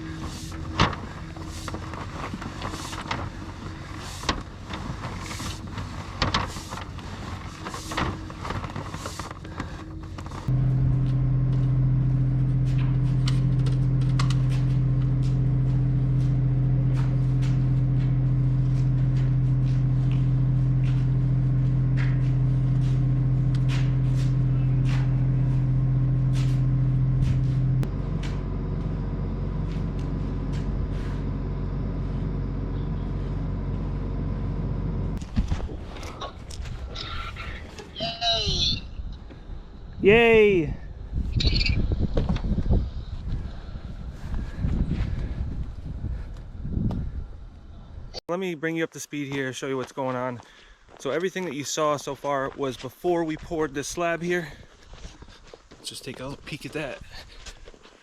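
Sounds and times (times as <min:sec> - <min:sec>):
motor droning: 0:00.0 - 0:38.0.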